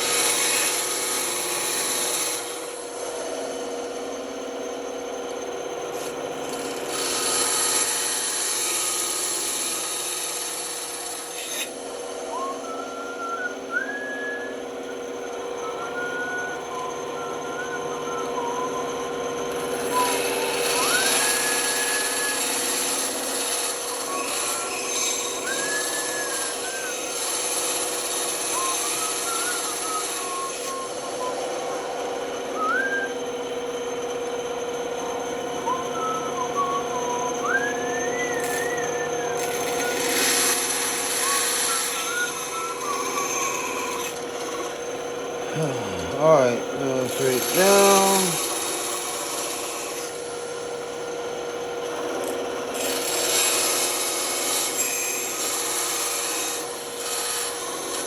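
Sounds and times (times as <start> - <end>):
saw blade cutting wood: 0.0 - 3.5, 5.9 - 12.2, 19.4 - 33.0, 35.0 - 50.5, 51.8 - 58.0
band saw motor hum: 0.0 - 58.0
short sliding high tones: 45.6 - 48.4.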